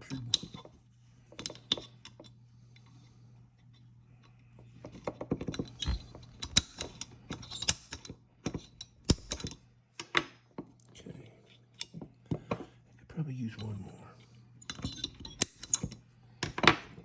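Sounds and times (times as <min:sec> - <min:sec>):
small metal parts clicking: 0:05.4 - 0:10.2, 0:14.6 - 0:16.8.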